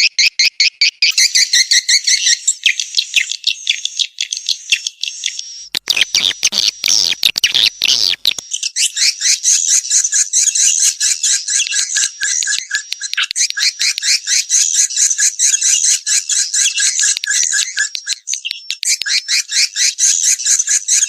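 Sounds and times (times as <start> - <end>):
swiftlets chirping: 5.8 - 8.4.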